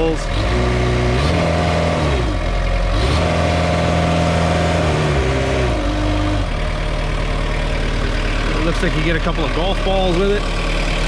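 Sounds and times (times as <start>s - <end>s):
diesel mower engine revving: 0.0s - 11.0s.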